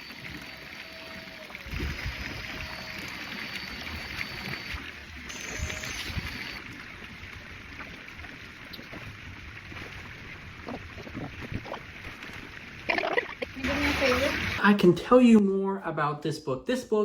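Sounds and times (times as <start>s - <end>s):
wind buffeting microphone: 1.7s - 2.7s, 9.7s - 12.1s.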